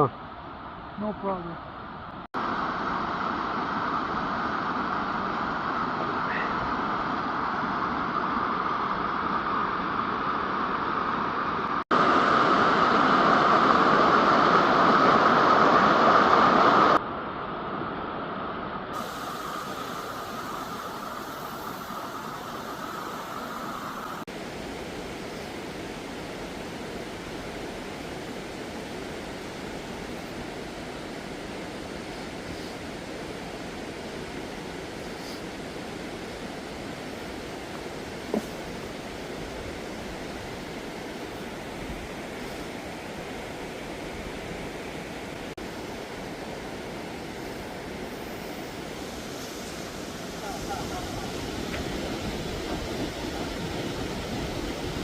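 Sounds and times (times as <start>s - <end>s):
steady rushing noise: 2.1s - 55.0s.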